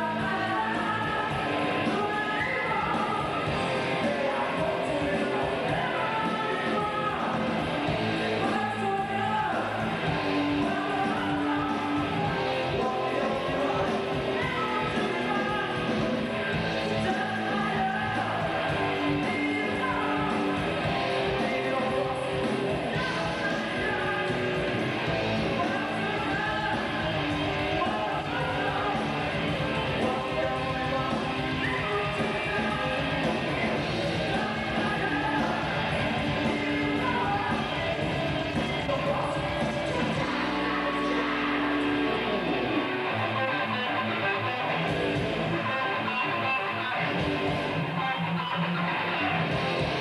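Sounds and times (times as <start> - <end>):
drums: 0.0 - 50.0
electric guitar: 0.0 - 50.0
person singing: 0.0 - 50.0
rock band playing: 0.0 - 50.0.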